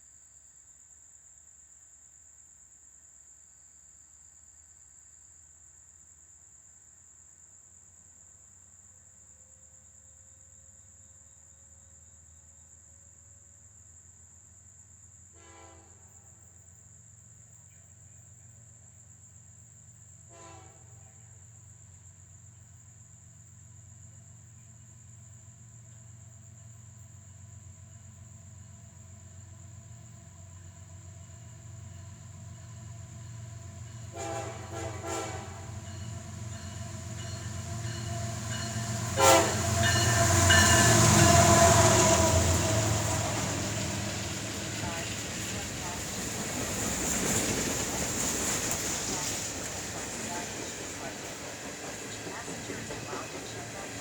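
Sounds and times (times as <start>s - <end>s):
high insect drone: 0.0s - 54.0s
low engine rumble and train noise: 15.1s - 54.0s
distant locomotive air horn: 15.4s - 16.1s, 20.3s - 21.0s, 34.0s - 45.8s, 48.7s - 54.0s.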